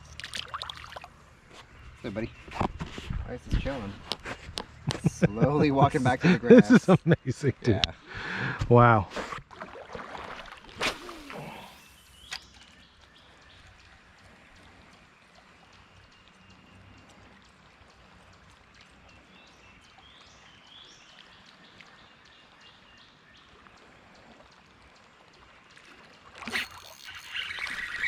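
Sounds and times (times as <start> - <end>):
running water: 0.0 - 7.6, 8.2 - 28.0
bird chirps: 26.5 - 28.0.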